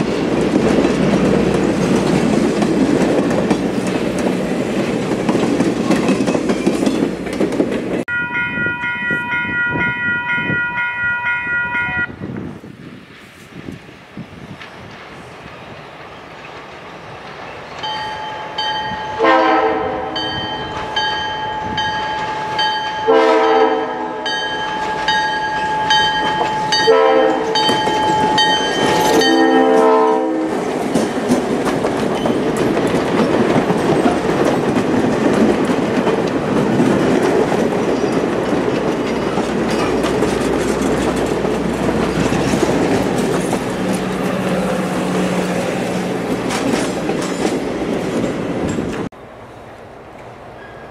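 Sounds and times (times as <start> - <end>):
train wheels clattering on rails: 0.0 - 8.1, 13.7 - 19.3, 20.1 - 23.2, 24.2 - 49.1
train horn blasts: 8.1 - 12.2, 19.1 - 20.5, 23.0 - 24.4, 26.7 - 27.8, 29.0 - 30.6
locomotive engine running: 30.7 - 49.1.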